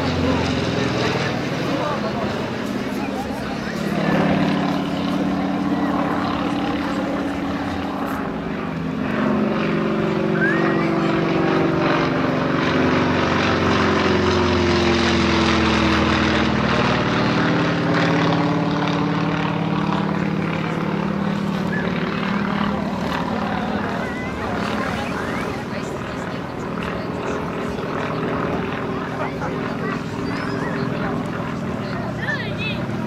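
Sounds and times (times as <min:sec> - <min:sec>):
propeller aircraft engine droning: 0:00.0 - 0:33.0.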